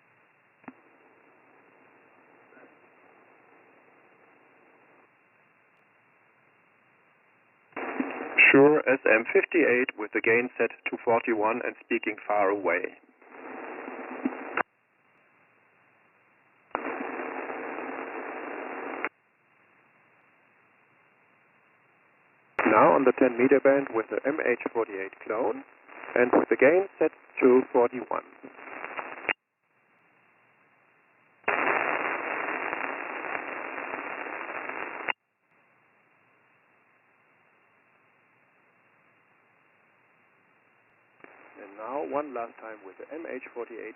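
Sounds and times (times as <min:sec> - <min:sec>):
radio click: 0:07.8 - 0:08.4, 0:13.4 - 0:14.7, 0:22.6 - 0:29.4
radio hiss bursts: 0:07.8 - 0:14.6, 0:16.7 - 0:19.1, 0:22.6 - 0:29.4, 0:31.5 - 0:35.2, 0:41.2 - 0:43.9.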